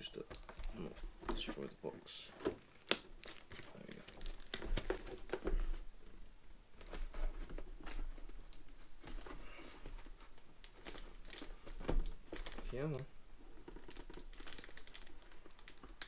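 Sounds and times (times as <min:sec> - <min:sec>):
hands handling toy packaging: 0:02.4 - 0:05.8, 0:06.8 - 0:16.0.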